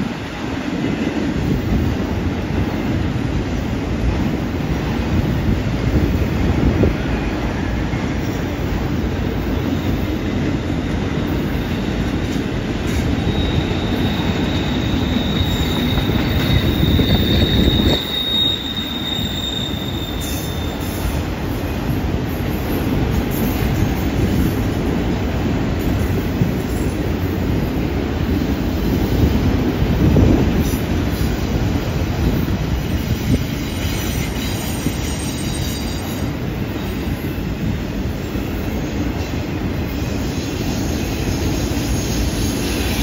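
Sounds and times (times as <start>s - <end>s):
train wheels rumbling on rail: 0.0s - 43.0s
steel wheel squeal: 12.9s - 21.2s, 33.6s - 36.2s.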